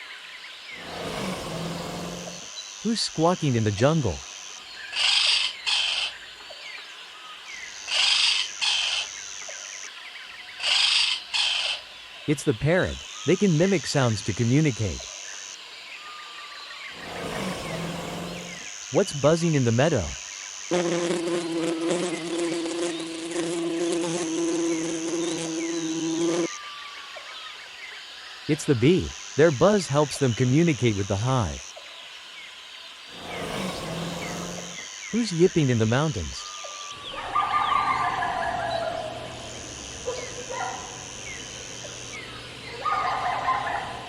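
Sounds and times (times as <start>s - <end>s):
bee buzzing: 0.8s - 2.6s, 16.9s - 26.5s, 33.1s - 36.1s, 38.8s - 42.8s
faint bird chirps: 31.6s - 44.0s
parrot squawking: 37.0s - 39.4s.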